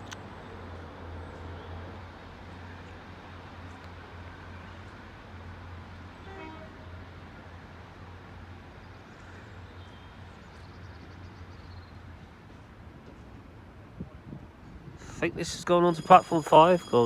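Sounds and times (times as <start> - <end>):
train diesel engines droning: 14.9 - 17.0
faint high-pitched squeals: 15.0 - 17.0.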